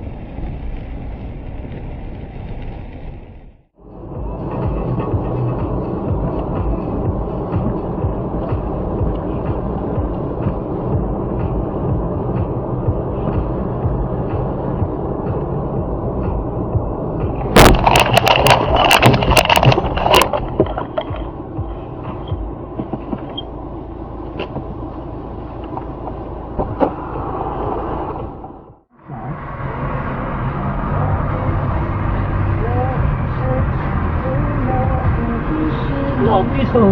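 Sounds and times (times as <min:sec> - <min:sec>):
vehicle running and road noise: 0:00.0 - 0:36.9
vehicle collision crash: 0:17.5 - 0:21.4.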